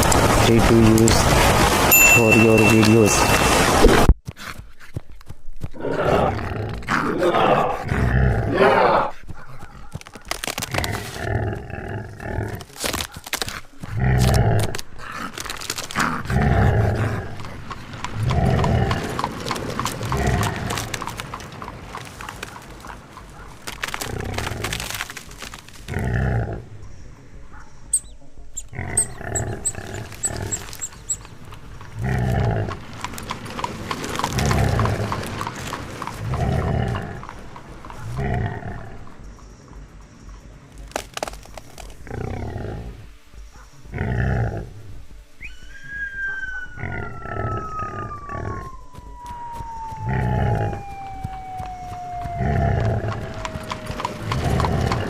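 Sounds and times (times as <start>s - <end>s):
wild animals roaring and growling: 5.8s - 9.2s, 10.5s - 13.0s, 13.8s - 23.0s, 25.9s - 26.8s, 28.6s - 39.3s, 42.0s - 43.1s, 43.9s - 45.1s, 45.9s - 55.0s.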